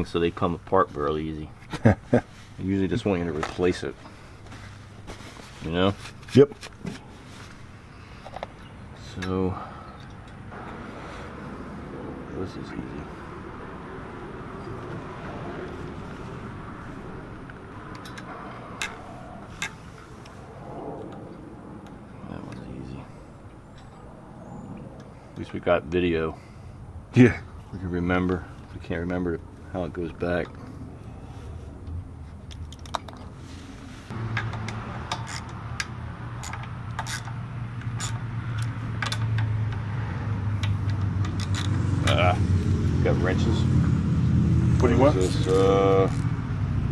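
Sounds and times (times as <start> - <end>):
tools clicking and tapping: 34.3 - 39.9, 40.6 - 42.2.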